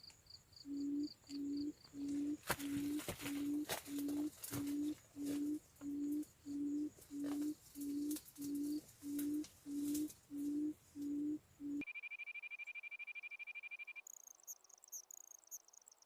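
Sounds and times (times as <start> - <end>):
quail hooting call: 0.7 - 11.8.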